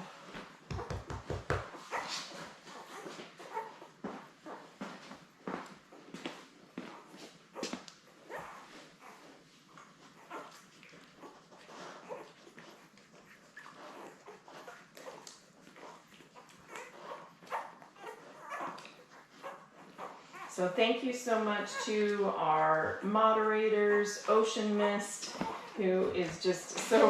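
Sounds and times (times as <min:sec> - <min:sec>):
puppies squeaking and whimpering: 0:01.7 - 0:03.9, 0:07.0 - 0:20.5, 0:25.2 - 0:25.8.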